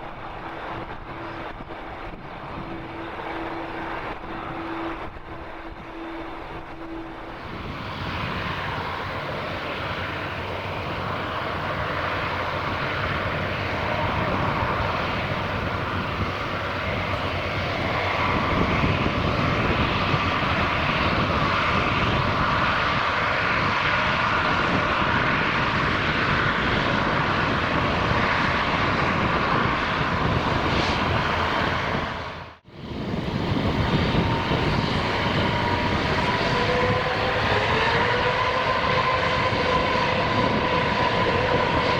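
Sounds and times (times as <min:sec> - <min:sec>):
jet engine roar: 0:00.0 - 0:41.9
jet engine whine: 0:00.0 - 0:41.9.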